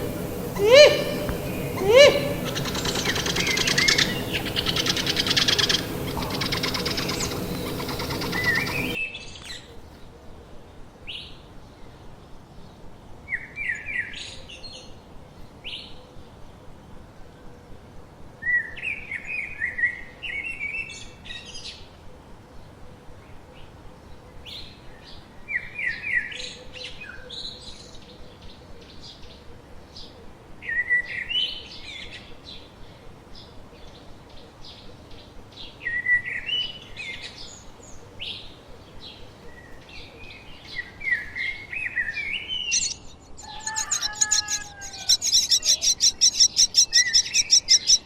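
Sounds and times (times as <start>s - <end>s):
loud dense noise: 0.0s - 9.0s
small birds chirping: 0.0s - 10.0s, 31.0s - 48.0s.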